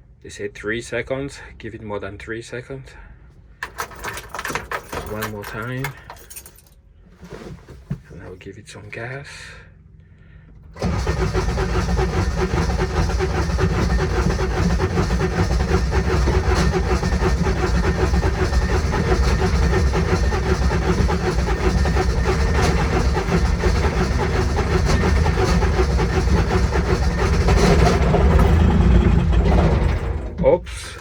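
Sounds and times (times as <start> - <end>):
starter cranking diesel engine: 3.6 - 6.4, 10.6 - 31.0.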